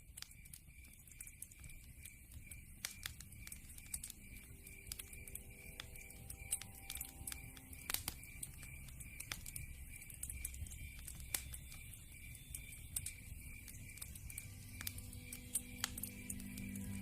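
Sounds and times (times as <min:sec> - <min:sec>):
low rumble of burning logs: 0:00.0 - 0:17.0
sharp pops and snaps: 0:00.0 - 0:17.0
wood fire crackling: 0:00.0 - 0:17.0.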